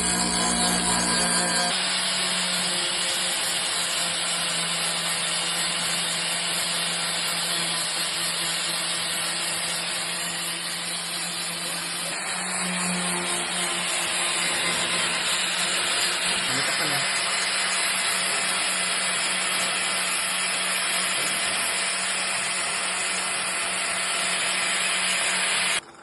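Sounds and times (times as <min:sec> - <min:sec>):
power tool hissing and humming: 0:00.0 - 0:26.0.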